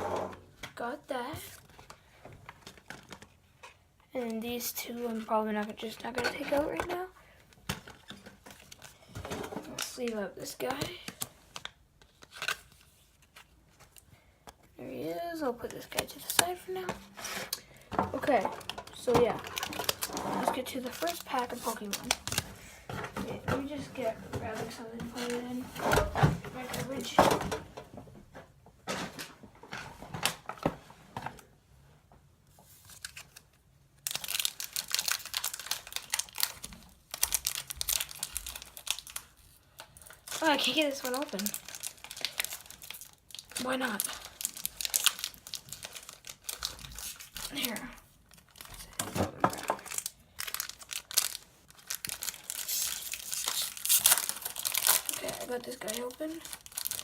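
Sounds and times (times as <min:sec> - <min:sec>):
wrapper crinkling: 0:15.3 - 0:22.6, 0:32.8 - 0:57.0.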